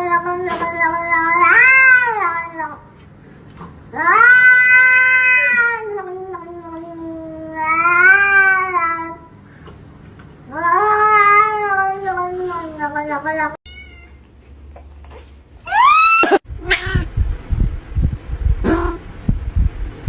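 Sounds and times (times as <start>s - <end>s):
cat yowling: 4.0s - 6.1s, 13.7s - 14.2s, 15.7s - 17.0s.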